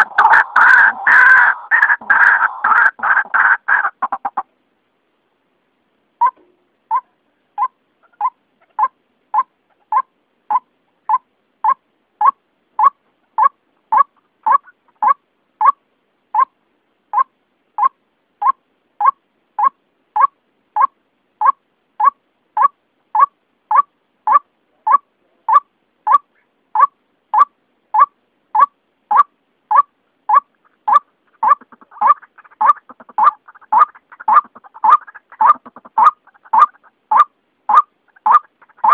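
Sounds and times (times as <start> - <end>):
waterhen call repeated: 0.0 - 4.5, 6.2 - 15.8, 17.2 - 38.9
fast chattering bird call: 26.8 - 38.9.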